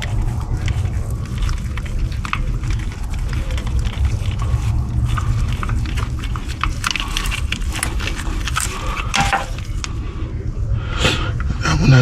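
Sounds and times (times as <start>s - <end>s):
low rumble: 0.0s - 12.0s
hand tools clicking and clinking: 5.1s - 10.0s.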